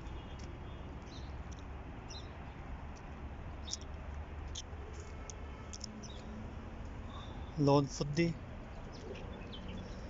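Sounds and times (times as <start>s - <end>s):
high bird chirps: 3.6s - 3.9s.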